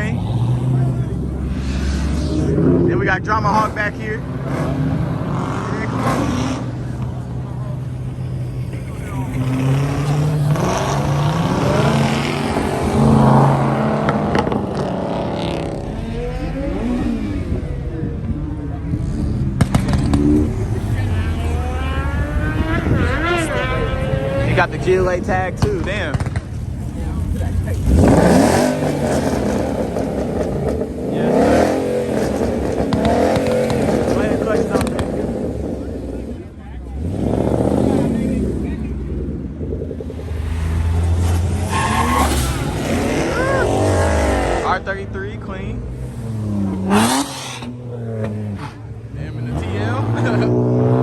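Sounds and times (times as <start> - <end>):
cars driving past: 0.0 - 51.0.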